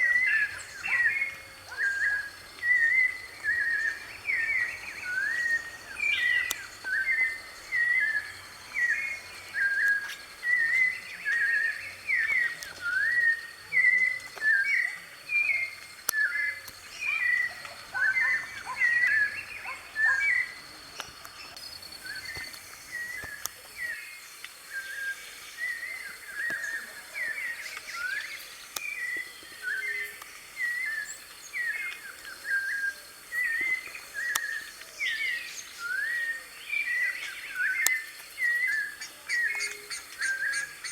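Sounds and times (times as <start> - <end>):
thrush whistled song: 0.0 - 40.9.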